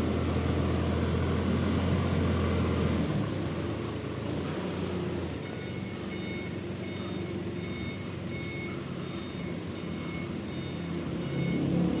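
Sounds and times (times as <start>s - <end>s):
heavy vehicle engine running: 0.0s - 12.0s
reversing alarm beeping: 5.1s - 12.0s.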